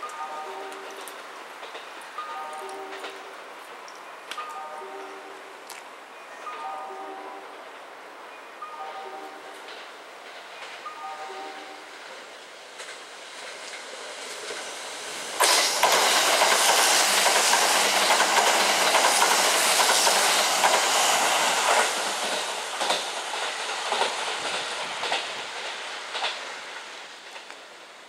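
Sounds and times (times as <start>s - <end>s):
train passing with rushing noise: 0.0s - 28.0s
wheels clacking over rail joint: 15.4s - 27.7s.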